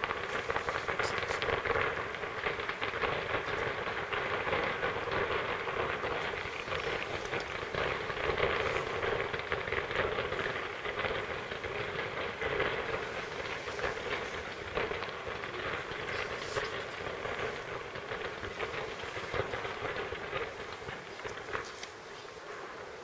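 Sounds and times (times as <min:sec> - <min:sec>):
distant fireworks crackling: 0:00.0 - 0:23.0.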